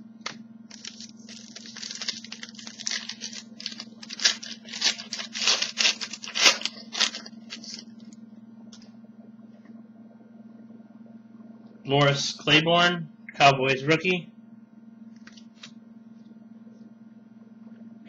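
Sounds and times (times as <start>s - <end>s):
wrapper being torn and crinkled: 0.7s - 8.1s.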